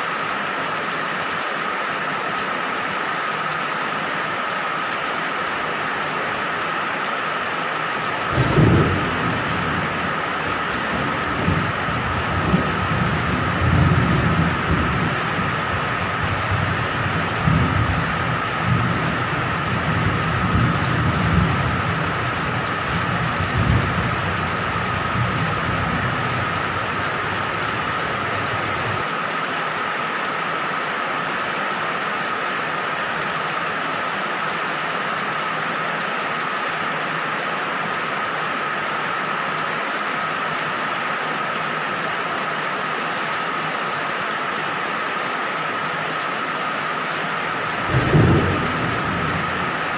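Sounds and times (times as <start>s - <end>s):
steady rain: 0.0s - 49.9s
rolling thunder: 8.3s - 29.0s, 47.7s - 49.9s.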